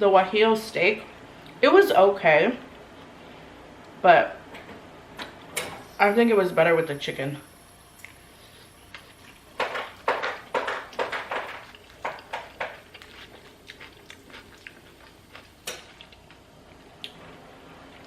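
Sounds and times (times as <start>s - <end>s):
wet chewing: 8.0s - 16.4s.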